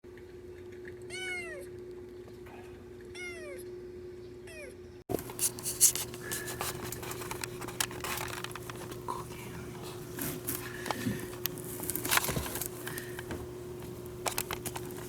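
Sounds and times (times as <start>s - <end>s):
handling clicks and rustling: 5.1s - 15.0s.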